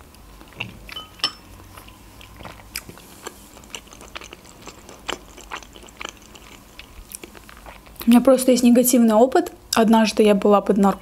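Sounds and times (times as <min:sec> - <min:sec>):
chewing soft food: 0:00.1 - 0:08.2.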